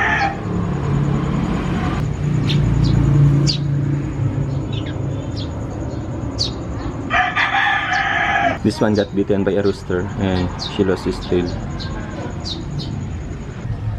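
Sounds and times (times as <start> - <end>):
rooster crowing: 0.0 - 0.9, 7.0 - 8.6
small birds chirping: 2.0 - 13.9.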